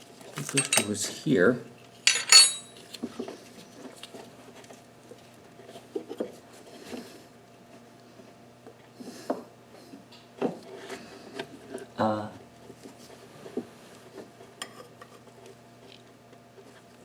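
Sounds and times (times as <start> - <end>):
hose being handled: 0.4 - 1.0, 2.1 - 2.6
small metal parts clicking: 0.4 - 1.0, 2.1 - 2.7
sharp metallic clink: 0.5 - 1.0, 2.1 - 2.7.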